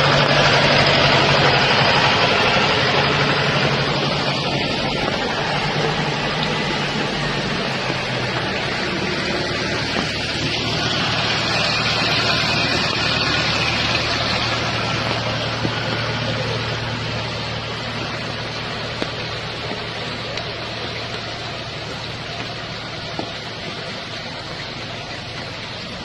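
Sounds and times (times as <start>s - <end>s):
jeep engine running: 0.0s - 26.0s
water rushing hiss: 0.0s - 26.0s.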